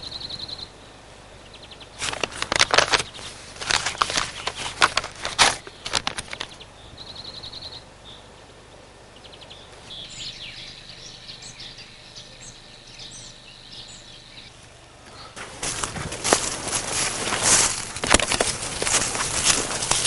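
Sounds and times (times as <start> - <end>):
bird trill: 0.0 - 0.8, 5.6 - 15.4
faint outdoor hiss: 0.0 - 20.0.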